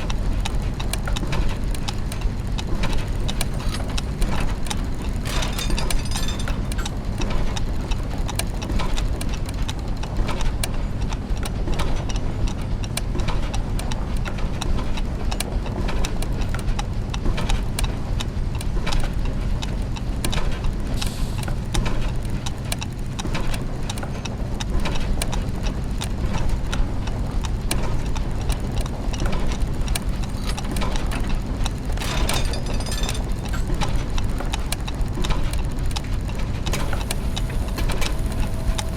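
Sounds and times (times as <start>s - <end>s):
clockwork gears ticking and clicking: 0.0s - 13.1s, 21.4s - 38.9s
low mechanical hum: 0.0s - 38.9s.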